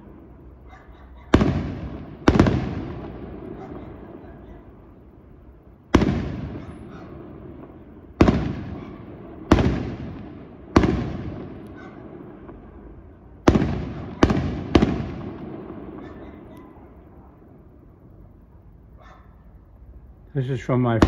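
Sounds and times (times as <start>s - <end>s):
fireworks bursting with echo: 1.3s - 5.0s, 5.8s - 17.6s.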